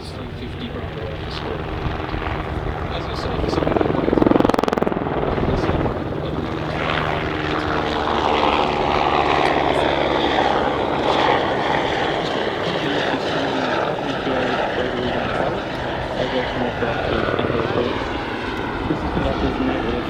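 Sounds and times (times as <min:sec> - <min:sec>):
helicopter turbine whine and rotor: 0:00.0 - 0:20.0.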